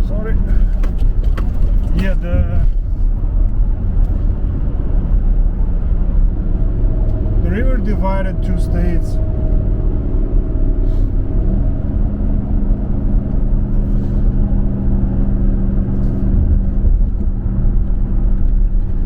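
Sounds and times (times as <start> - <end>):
car cabin road and engine drone: 0.0 - 19.0.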